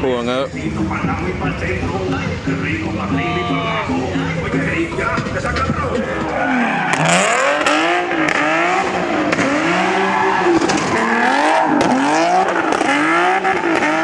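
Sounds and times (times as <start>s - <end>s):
car engine revving: 0.0s - 14.0s
tire squeal: 3.0s - 14.0s.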